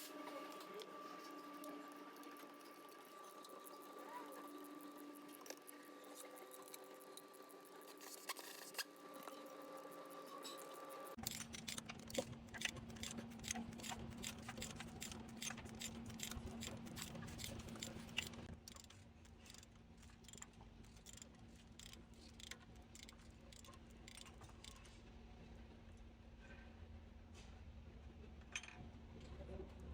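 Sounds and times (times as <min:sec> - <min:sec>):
rapid quiet mechanical clicking: 0:11.1 - 0:24.9.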